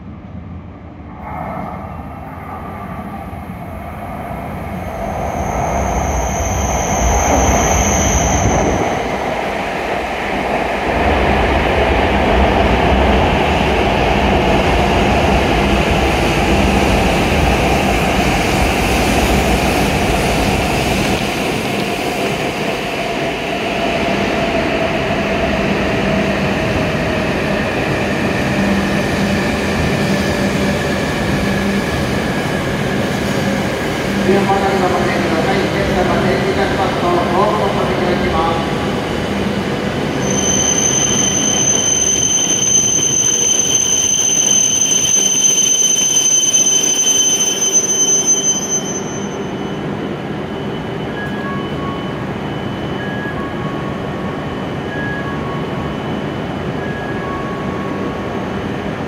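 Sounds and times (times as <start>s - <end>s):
whine sinking in pitch: 1.2s - 9.7s.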